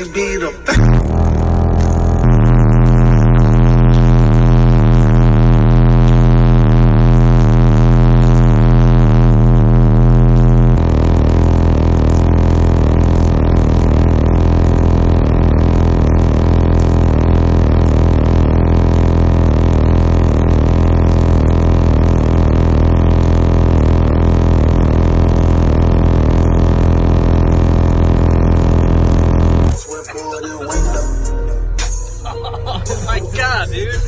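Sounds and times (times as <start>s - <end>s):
loud bass-heavy music: 0.0s - 34.0s.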